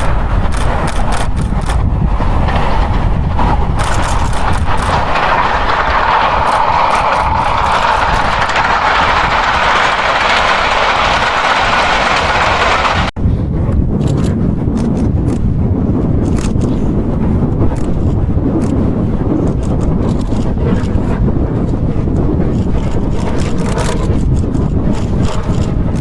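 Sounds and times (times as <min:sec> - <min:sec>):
steam train running by: 0:00.0 - 0:13.1
irregular clattering: 0:03.4 - 0:13.1.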